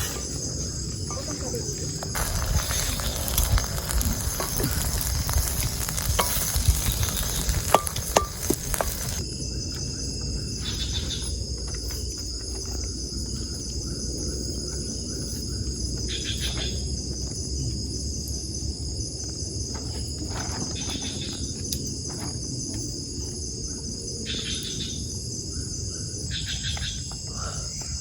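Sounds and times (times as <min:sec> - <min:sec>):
forest insects chirring: 0:00.0 - 0:28.0
food sizzling on campfire: 0:00.1 - 0:09.3
metal utensils clinking: 0:02.2 - 0:09.2.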